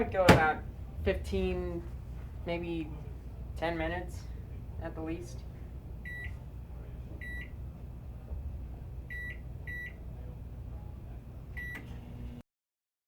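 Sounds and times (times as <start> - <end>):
steady low hum: 0.0 - 12.4
microwave keypad beeps: 6.0 - 6.4, 7.2 - 7.6, 9.1 - 10.0, 11.6 - 11.9.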